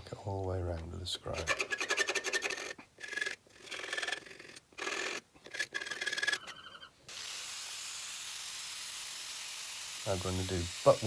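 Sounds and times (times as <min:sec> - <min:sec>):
steady hiss: 0:10.0 - 0:11.0.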